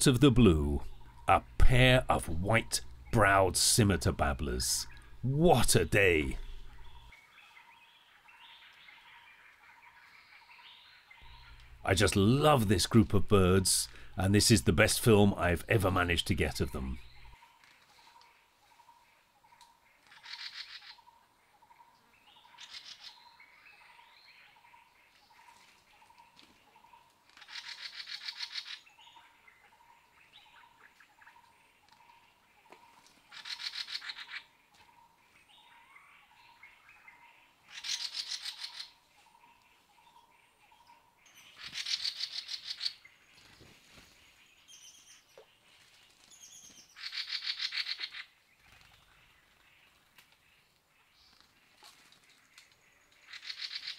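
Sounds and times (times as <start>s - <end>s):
bird trilling: 4.4s - 7.1s
bird rapid chattering: 27.4s - 28.9s, 33.3s - 34.5s, 37.7s - 38.9s, 41.4s - 43.0s, 46.4s - 49.1s, 53.2s - 53.9s.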